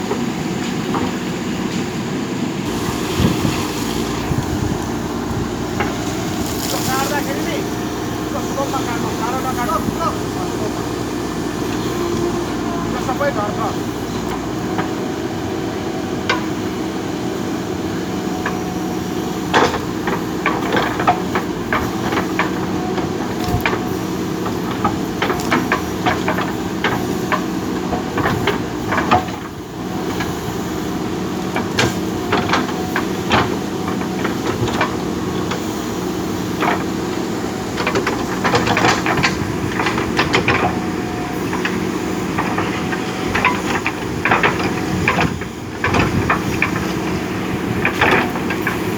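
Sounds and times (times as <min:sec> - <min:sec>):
diesel engine running: 0:00.0 - 0:48.9
bucket clanking and knocking: 0:19.4 - 0:30.4, 0:31.4 - 0:48.9.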